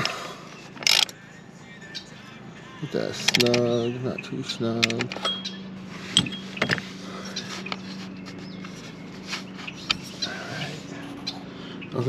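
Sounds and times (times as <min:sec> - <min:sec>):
steady low hum: 0:00.0 - 0:12.0
tools clicking and knocking: 0:00.8 - 0:01.1, 0:03.2 - 0:03.7, 0:04.8 - 0:05.5.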